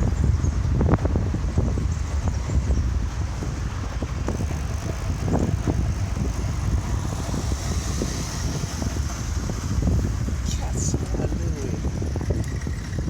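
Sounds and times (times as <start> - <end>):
road and traffic noise: 0.0 - 13.0
wind rumble on microphone: 0.0 - 13.0.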